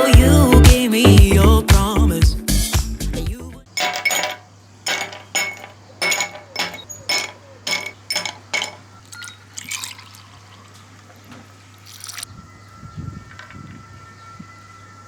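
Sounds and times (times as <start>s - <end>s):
dishware clinking: 3.7s - 12.2s
liquid pouring into a container: 8.2s - 12.3s.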